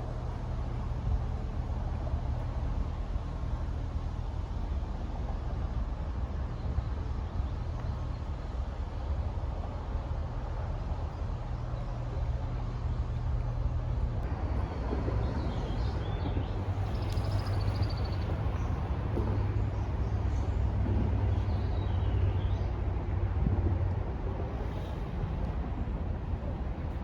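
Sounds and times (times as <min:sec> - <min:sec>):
songbirds chirping: 0:15.3 - 0:22.8.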